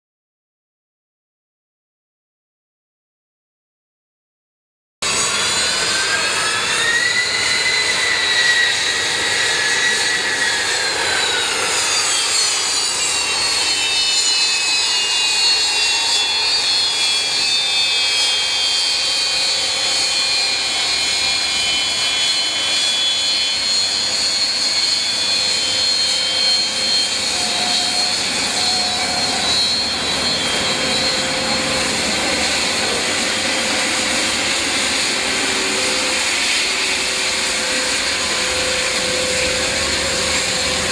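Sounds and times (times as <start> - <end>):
turbine engine whine: 5.0 - 40.9.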